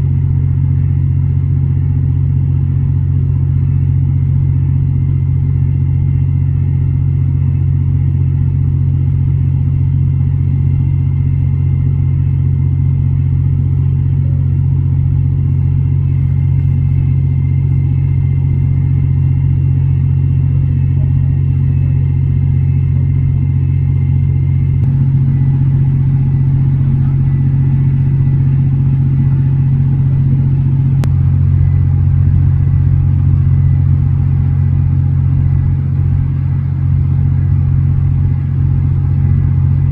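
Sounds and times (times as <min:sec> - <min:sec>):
faint high whine: 0:00.0 - 0:39.9
low engine drone: 0:00.0 - 0:39.9.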